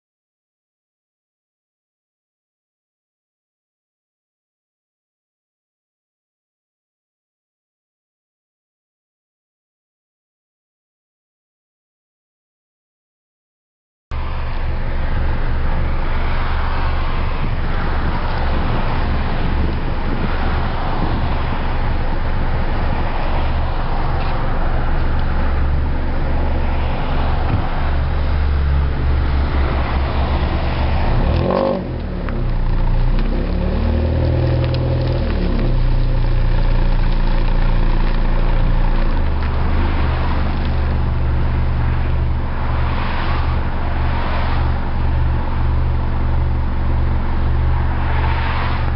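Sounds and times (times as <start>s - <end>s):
car exhaust drone: 14.1s - 48.9s.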